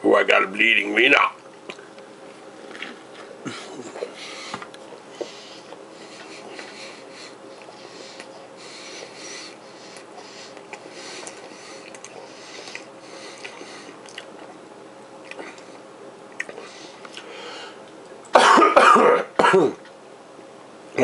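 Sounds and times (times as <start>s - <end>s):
faint steady hum: 0.0s - 21.0s
person chewing: 1.4s - 2.0s, 2.6s - 14.6s, 15.2s - 17.3s.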